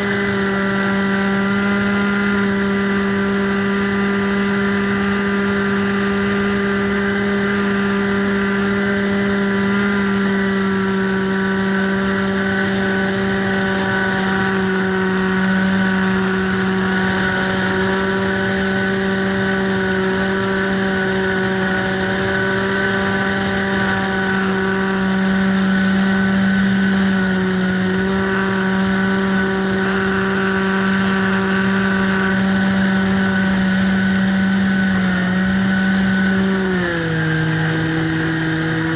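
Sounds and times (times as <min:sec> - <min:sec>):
model plane motor humming: 0:00.0 - 0:38.9.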